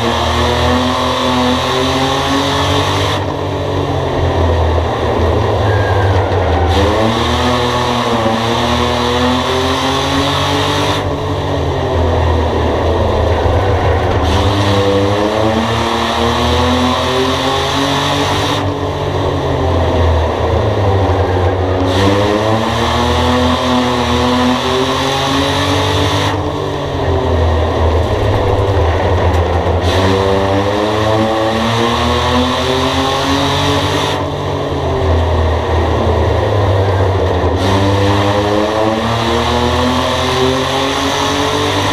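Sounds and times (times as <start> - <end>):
race car engine revving: 0.0 - 41.9.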